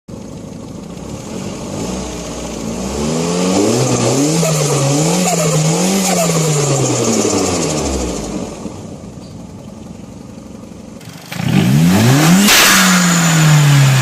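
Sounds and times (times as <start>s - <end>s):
turbocharged car engine revving: 0.9s - 9.0s, 11.0s - 14.0s.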